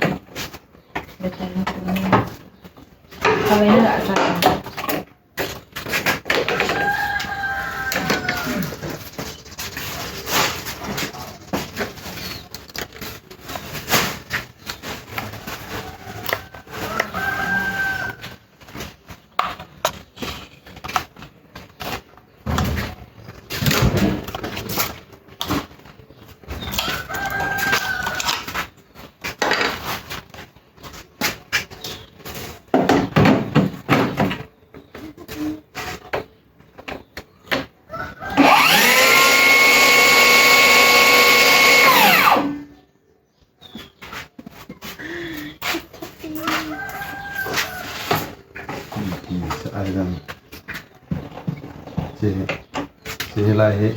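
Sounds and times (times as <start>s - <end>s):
rooster crowing: 6.5s - 8.8s, 16.0s - 18.3s, 26.8s - 28.4s, 37.9s - 42.6s, 46.5s - 48.1s
table saw motor whining: 38.4s - 42.6s.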